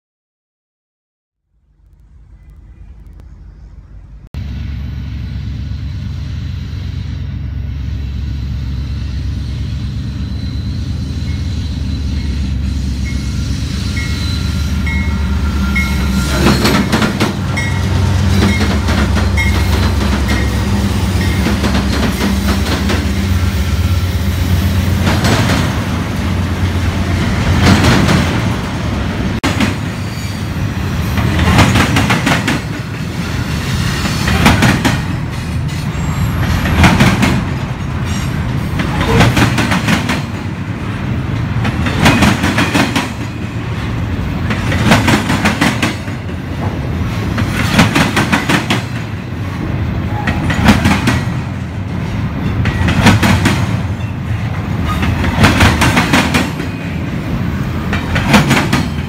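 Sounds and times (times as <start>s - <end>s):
diesel locomotives rumbling: 1.4s - 59.0s
train wheels clicking over rail joints: 15.8s - 23.5s, 24.9s - 28.7s, 29.4s - 30.4s, 31.0s - 59.0s.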